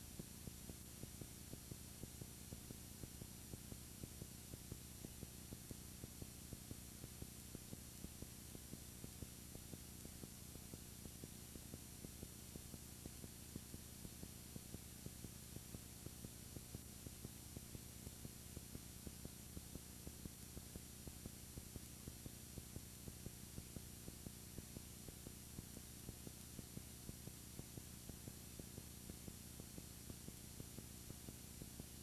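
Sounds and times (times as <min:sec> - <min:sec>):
faint electrical hum: 0:00.0 - 0:32.0
soft regular ticks: 0:00.1 - 0:32.0.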